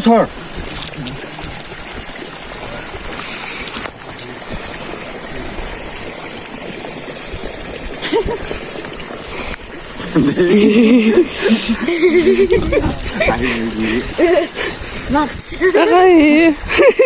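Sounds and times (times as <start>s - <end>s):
wind blowing across microphone: 11.8s - 17.0s.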